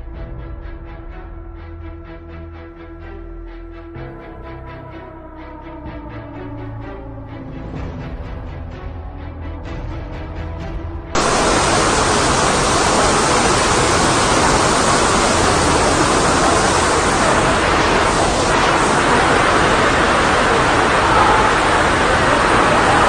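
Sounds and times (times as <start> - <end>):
background music: 0.0 - 11.3
loud steady rushing noise: 11.2 - 23.0.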